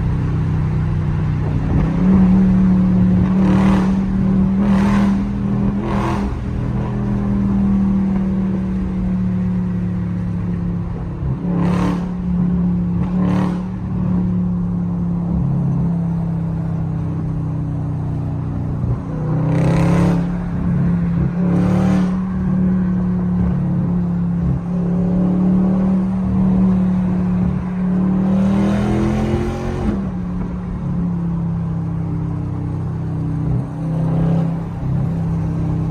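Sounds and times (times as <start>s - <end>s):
car exhaust drone while driving: 0.0s - 35.9s.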